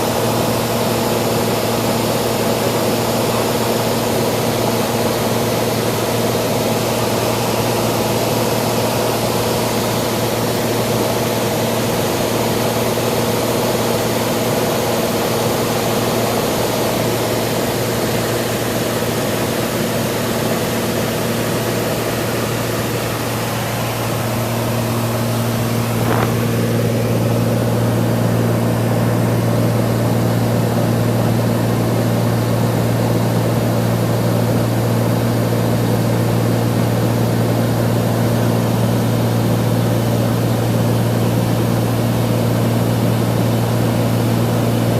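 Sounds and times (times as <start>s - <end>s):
propeller plane engine droning: 0.0s - 44.9s
rushing air: 23.2s - 28.0s.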